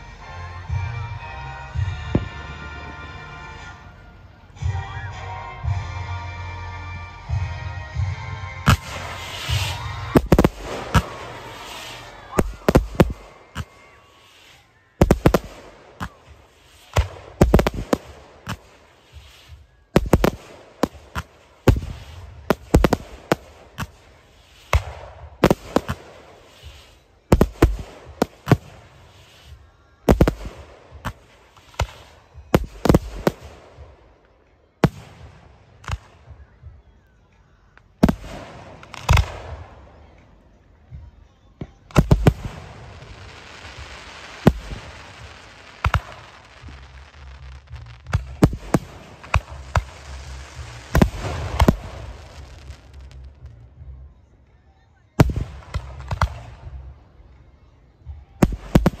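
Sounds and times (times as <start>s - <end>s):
fireworks bangs: 8.6s - 36.8s, 37.9s - 40.2s, 40.9s - 53.6s, 55.2s - 56.9s, 58.0s - 59.0s.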